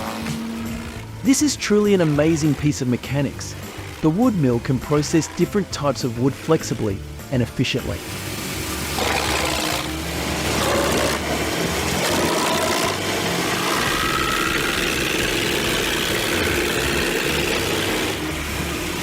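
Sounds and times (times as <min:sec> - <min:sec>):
wood chipper engine running: 0:00.0 - 0:07.2, 0:07.9 - 0:19.0.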